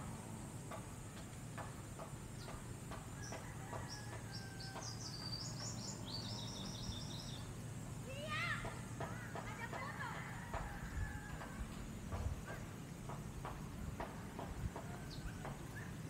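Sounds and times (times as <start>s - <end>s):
wind: 0.0s - 16.0s
small bird singing: 2.3s - 7.7s, 14.8s - 16.0s.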